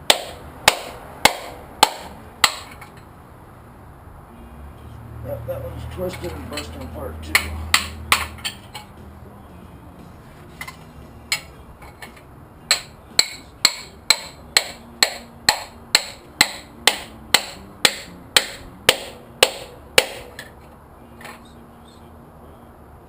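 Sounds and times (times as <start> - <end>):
hammer striking metal: 0.0 - 3.0, 6.1 - 8.9, 10.6 - 20.6.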